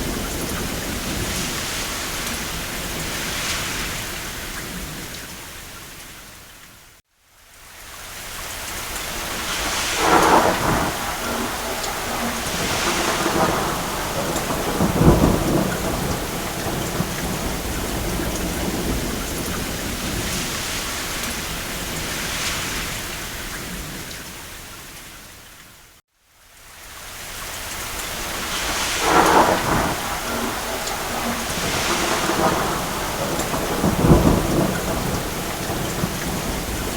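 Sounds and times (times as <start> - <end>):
rain on a roof: 0.0 - 36.9
distant thunder rolls: 9.2 - 24.2, 28.1 - 36.9.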